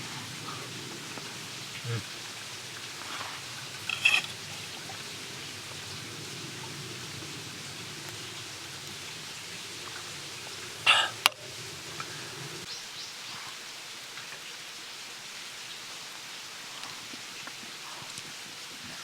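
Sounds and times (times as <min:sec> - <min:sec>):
short metallic scrapes: 0:03.9 - 0:04.6.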